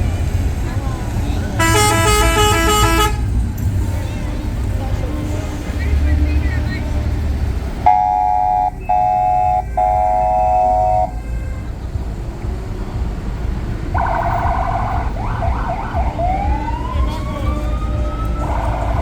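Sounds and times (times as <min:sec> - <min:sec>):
truck engines rumbling: 0:00.0 - 0:19.0
truck air horns blasting: 0:01.6 - 0:03.5, 0:07.8 - 0:12.5, 0:13.9 - 0:19.0.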